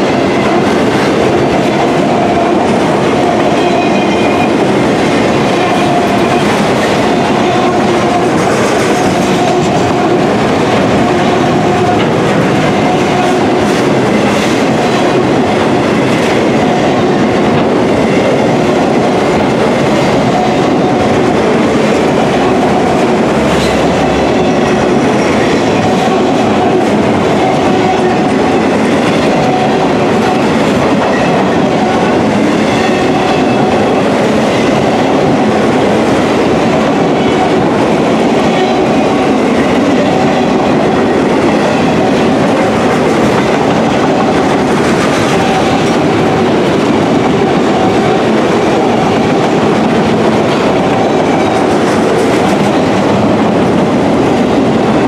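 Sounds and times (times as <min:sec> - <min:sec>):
steel wheels on rails: 0:00.0 - 0:55.0.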